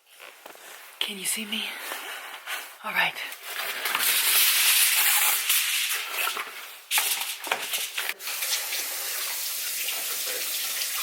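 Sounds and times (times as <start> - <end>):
water running from a tap: 7.8 - 11.0.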